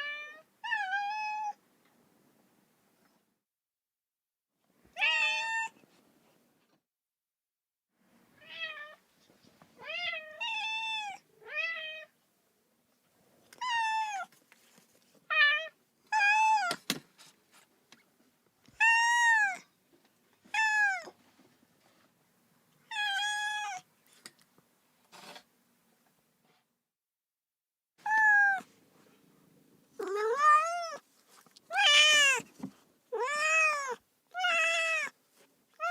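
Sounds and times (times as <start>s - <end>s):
kitten meowing: 28.0s - 28.7s, 30.0s - 31.0s, 31.7s - 32.4s, 33.1s - 35.1s.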